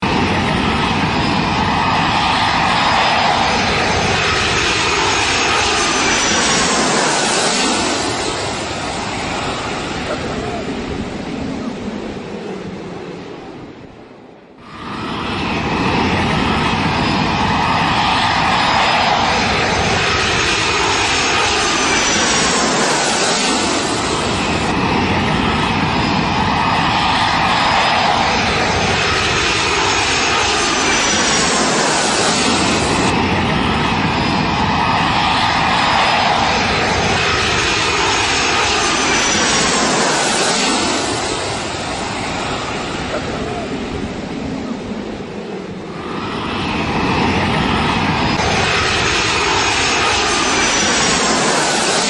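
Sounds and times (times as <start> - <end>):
jet airliner engines running: 0.0 - 52.0.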